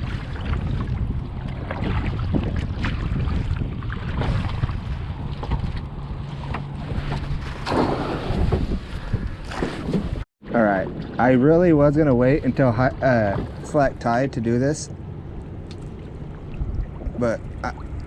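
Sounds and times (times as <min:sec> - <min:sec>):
water splashing around kayak: 0:00.0 - 0:18.0
wind buffeting microphone: 0:00.0 - 0:18.0
low steady hum: 0:10.5 - 0:18.0.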